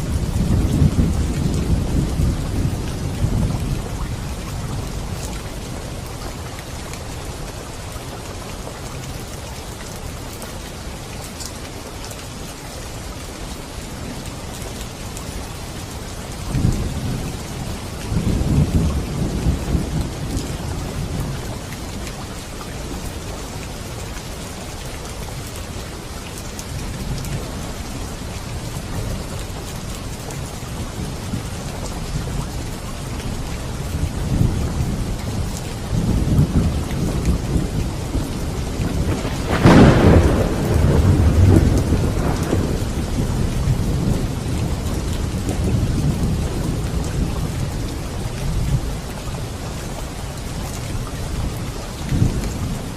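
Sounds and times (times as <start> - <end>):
heavy rain hissing: 32.7 - 51.3
thunder rumbling: 35.9 - 47.6.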